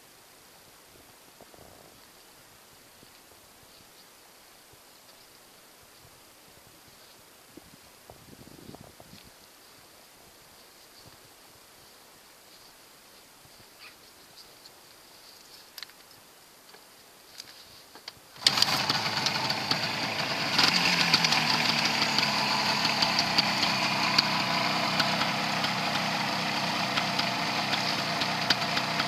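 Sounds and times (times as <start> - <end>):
two-stroke engine idling: 18.4 - 29.0.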